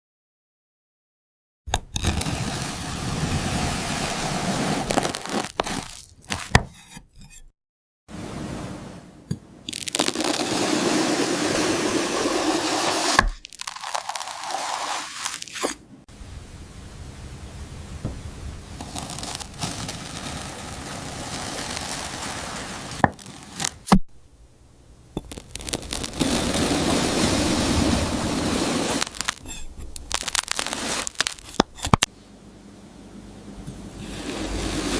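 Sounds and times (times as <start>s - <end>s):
honeycomb crackling and tearing: 4.8s - 6.6s, 9.7s - 10.5s, 13.3s - 15.7s, 18.8s - 22.2s, 25.2s - 26.8s, 29.0s - 32.1s
sharp cracks: 9.7s - 10.6s, 13.2s - 15.8s, 18.8s - 24.0s, 25.2s - 32.1s.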